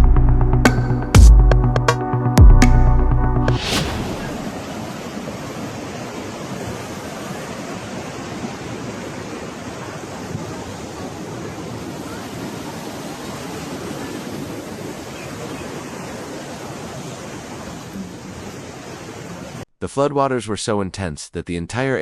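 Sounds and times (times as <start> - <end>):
floodwater rushing: 3.5 - 19.6.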